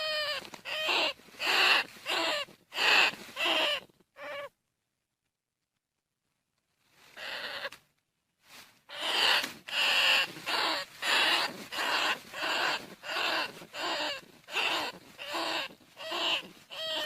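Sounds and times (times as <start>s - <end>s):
rat calling: 0.0s - 4.6s, 7.2s - 7.8s, 8.9s - 17.0s.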